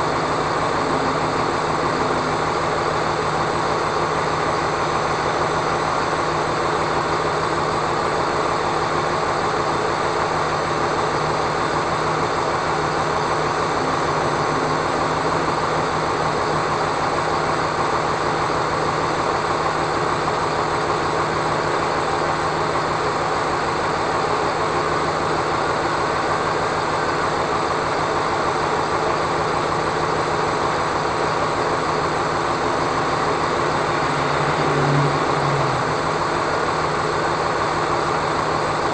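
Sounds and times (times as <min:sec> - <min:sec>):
vehicle engine and road noise: 0:00.0 - 0:18.8, 0:29.0 - 0:38.9.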